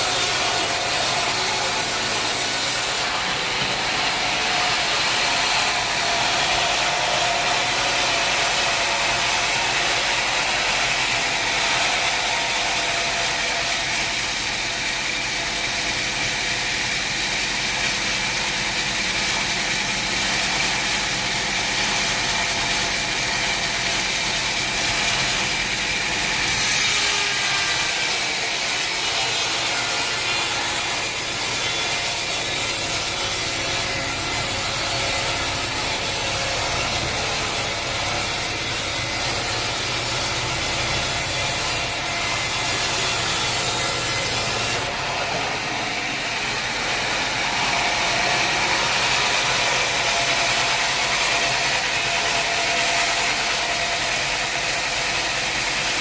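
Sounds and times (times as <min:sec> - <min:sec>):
saw cutting log with hiss: 0:00.0 - 0:56.0
sawmill machinery running: 0:00.0 - 0:56.0.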